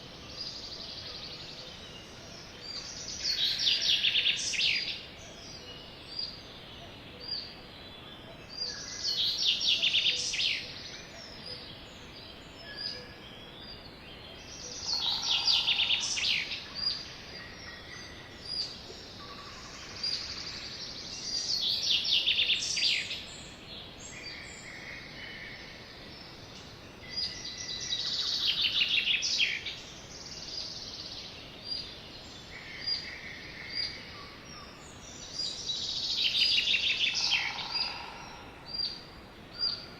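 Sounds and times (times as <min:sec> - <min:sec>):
background hiss: 0:00.0 - 0:39.9
sparrows trilling song: 0:26.2 - 0:39.9.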